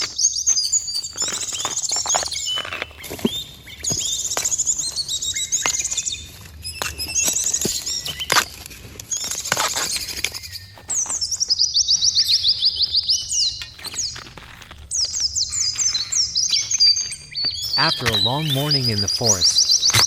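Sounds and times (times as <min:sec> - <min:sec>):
birds chirping and singing: 0:14.9 - 0:20.0
bird trill: 0:19.3 - 0:20.0.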